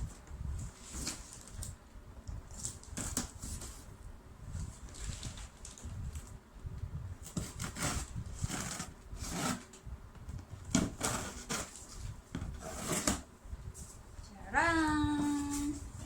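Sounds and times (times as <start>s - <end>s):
cardboard packaging rubbing and scraping: 0.5s - 1.8s, 2.5s - 6.2s, 7.2s - 9.8s, 10.6s - 14.0s.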